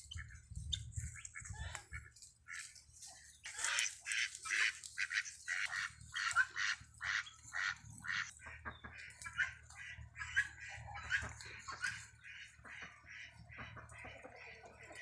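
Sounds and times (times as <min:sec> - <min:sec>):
poultry calling harshly: 0:00.0 - 0:15.0.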